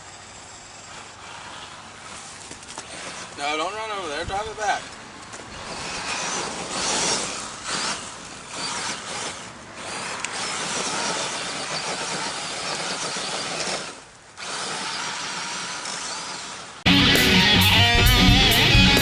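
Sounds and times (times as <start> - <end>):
tyres on rough ground: 0.0 - 17.1
electric motor whine: 4.5 - 19.0.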